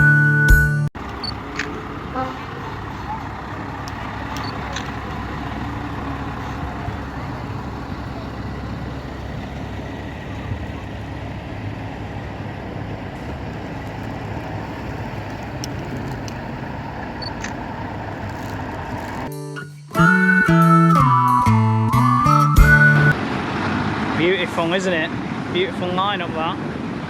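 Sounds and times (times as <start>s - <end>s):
truck diesel engine idling: 1.0s - 19.3s.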